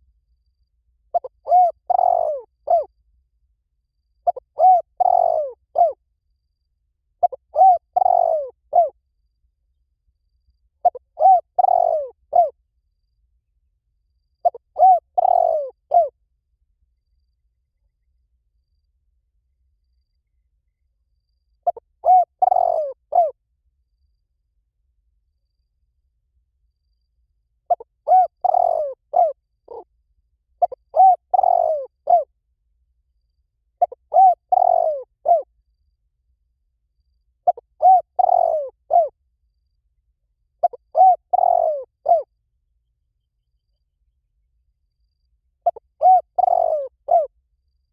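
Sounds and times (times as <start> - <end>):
dove cooing: 1.1 - 2.9, 4.2 - 6.0, 7.2 - 9.0, 10.8 - 12.6, 14.4 - 16.1, 21.6 - 23.4, 27.7 - 29.9, 30.6 - 32.3, 33.8 - 35.5, 37.4 - 39.1, 40.6 - 42.3, 45.6 - 47.3.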